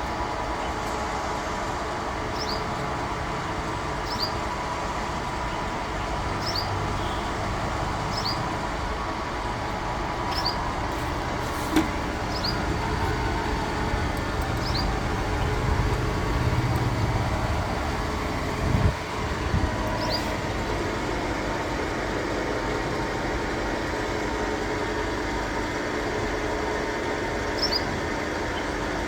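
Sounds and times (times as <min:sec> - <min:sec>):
lathe running: 0:09.6 - 0:22.8.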